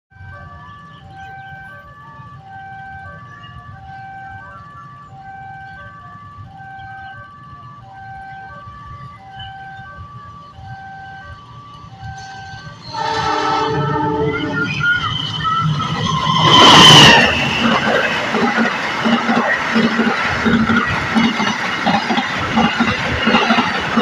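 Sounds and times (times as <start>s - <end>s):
level crossing warning alarm: 0.1s - 24.0s.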